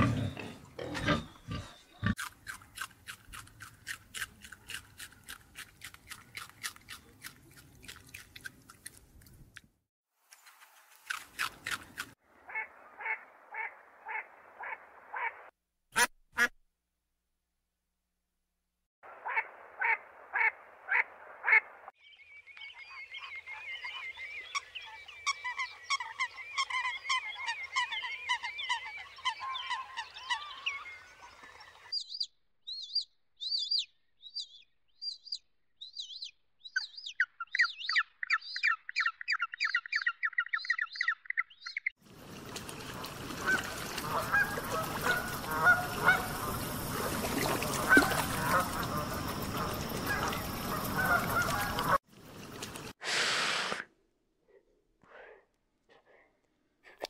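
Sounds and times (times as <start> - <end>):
outdoor background noise: 0.0 - 16.5, 19.0 - 57.0
chattering warbling bird calls: 22.1 - 42.0
swans calling: 42.6 - 52.0
ducks quacking: 42.9 - 52.0.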